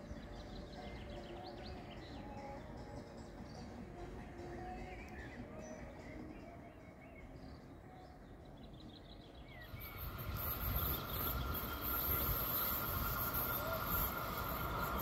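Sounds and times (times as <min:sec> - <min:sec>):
train rail rumble and hiss: 0:09.5 - 0:15.0
high ringing from train wheels: 0:09.6 - 0:15.0.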